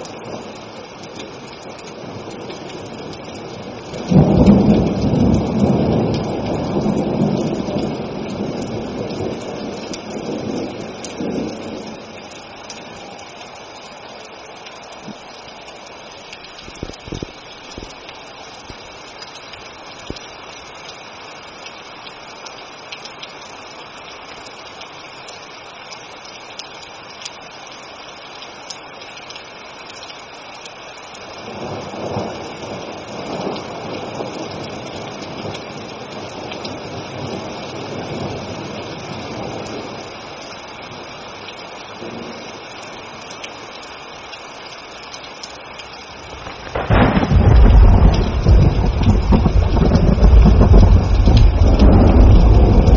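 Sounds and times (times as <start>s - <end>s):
steady rain falling: 0.0s - 52.9s
thunder rumbling: 2.0s - 12.2s, 46.2s - 52.9s.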